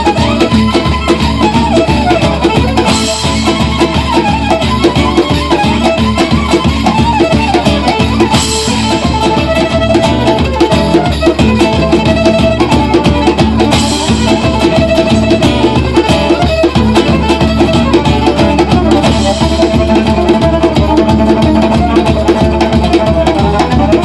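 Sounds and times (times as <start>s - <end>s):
live band fast instrumental: 0.0s - 24.0s.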